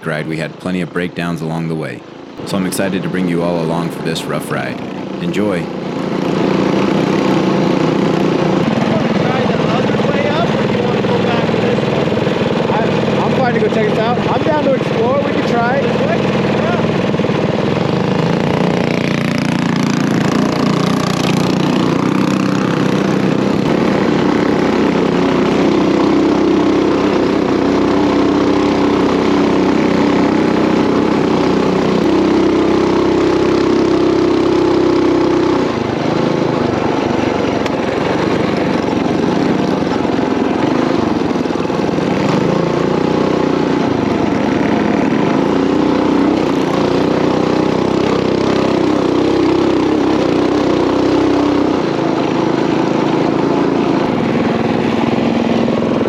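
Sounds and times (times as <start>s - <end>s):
small engine running: 0.0s - 56.0s.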